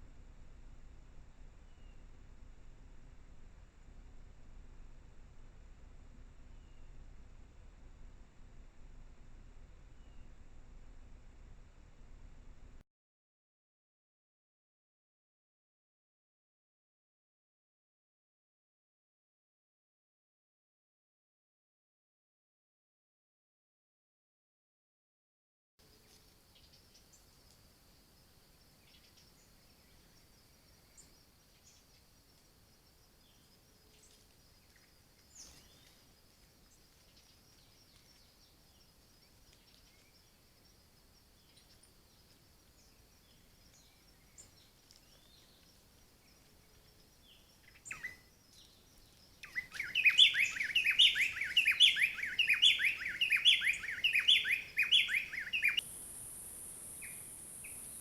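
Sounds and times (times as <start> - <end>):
bird chirping rapidly: 49.4 - 55.8
steady high hiss: 53.7 - 58.0.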